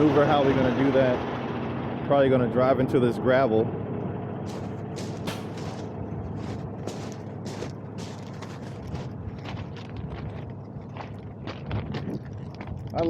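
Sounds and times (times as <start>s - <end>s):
diesel engine hum: 0.0s - 13.0s
tires crunching over gravel: 4.4s - 13.0s.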